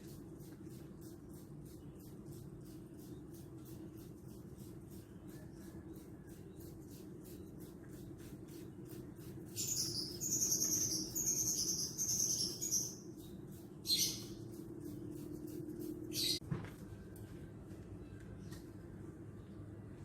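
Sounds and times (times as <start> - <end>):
bird chirping song: 1.3 - 16.4.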